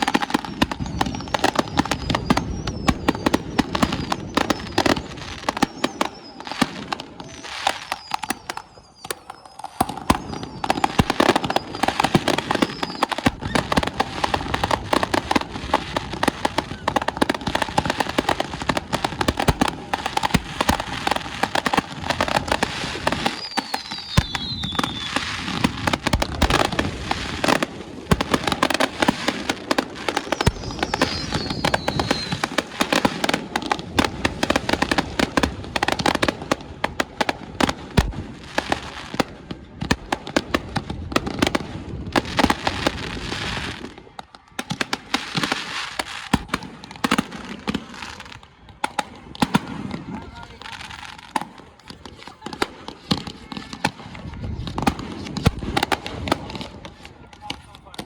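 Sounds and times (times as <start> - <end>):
fireworks bangs and crackles: 0.0 - 58.0
falling whistles: 0.6 - 14.3, 22.4 - 25.8, 30.1 - 33.0.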